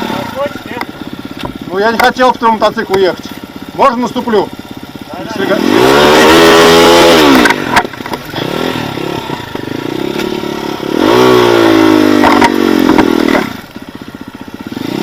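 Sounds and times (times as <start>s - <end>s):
motorcycle engine revving: 0.0s - 15.0s
knocks and clatters: 7.4s - 8.4s, 12.2s - 13.5s.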